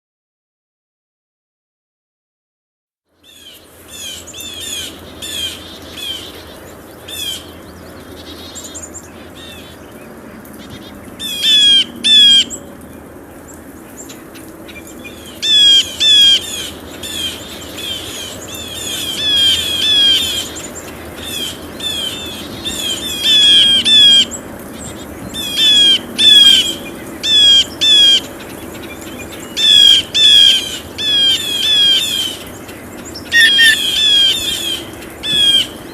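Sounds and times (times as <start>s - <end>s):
blue jays calling: 29.3s - 35.9s.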